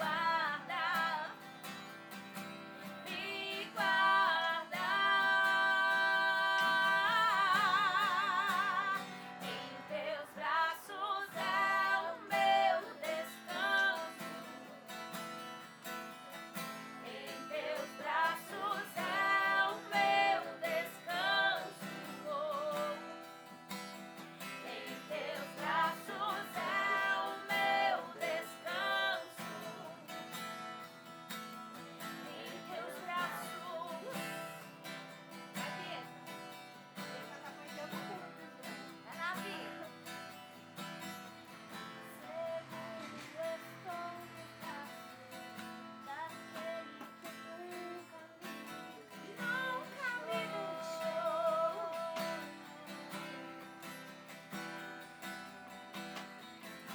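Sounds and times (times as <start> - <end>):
woman singing: 0.0 - 1.9, 2.8 - 15.0, 16.8 - 23.4, 24.4 - 30.3, 32.0 - 34.8, 35.4 - 36.4, 37.9 - 40.4, 41.7 - 53.6
strummed acoustic guitar: 0.0 - 56.9.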